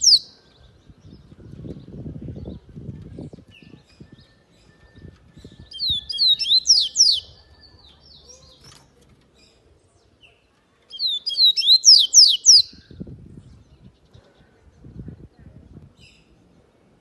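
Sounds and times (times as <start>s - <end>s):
bird singing whistled notes: 0.0s - 2.7s, 3.5s - 8.6s, 10.9s - 13.6s.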